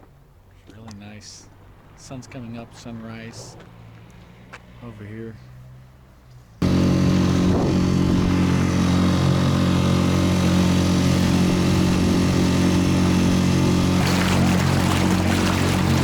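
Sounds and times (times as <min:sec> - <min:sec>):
outboard motor running: 0:06.6 - 0:16.0.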